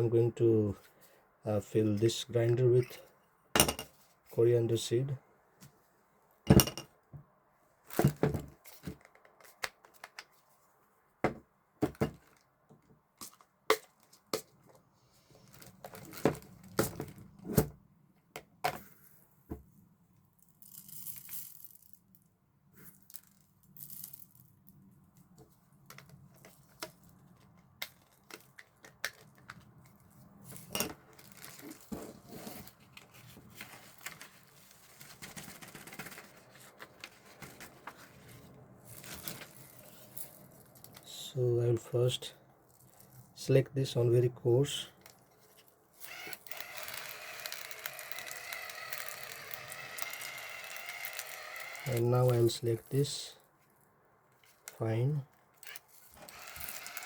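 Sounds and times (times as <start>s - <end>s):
plastic crinkling and tearing: 15.4s - 17.2s, 31.1s - 32.2s, 38.8s - 41.1s, 45.1s - 52.0s, 55.7s - 57.0s.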